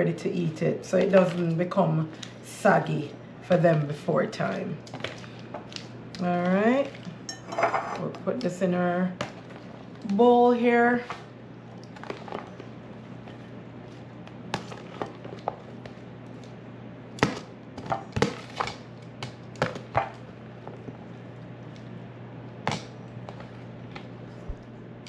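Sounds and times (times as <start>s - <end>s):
steady low hum: 0.0s - 25.0s
utensils clattering against bowl: 7.3s - 8.2s.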